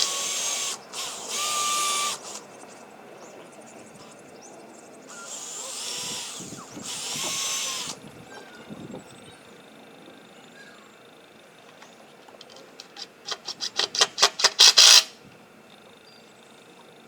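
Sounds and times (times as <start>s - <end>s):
power drill driving screws into wood: 0.0s - 2.4s, 5.1s - 8.0s, 12.4s - 15.2s.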